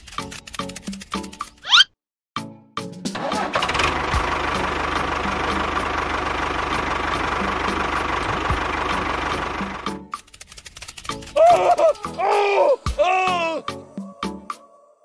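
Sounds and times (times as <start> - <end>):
engine rumbling: 3.2 - 10.1.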